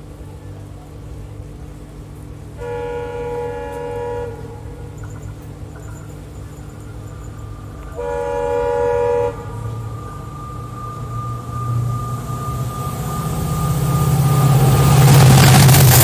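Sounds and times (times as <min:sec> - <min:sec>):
diesel locomotive engine rumble: 0:00.0 - 0:16.0
thin steady whine: 0:00.0 - 0:16.0
locomotive horn blast: 0:02.5 - 0:05.1, 0:07.6 - 0:16.0.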